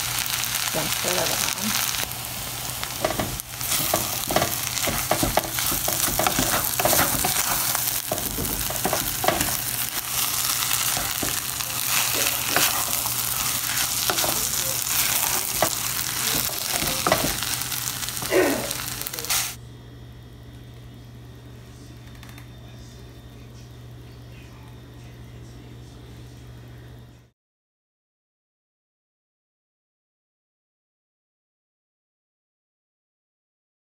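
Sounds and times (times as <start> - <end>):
rice sizzling in a pan: 0.0 - 19.6
wooden spatula scraping a pan: 2.9 - 18.3.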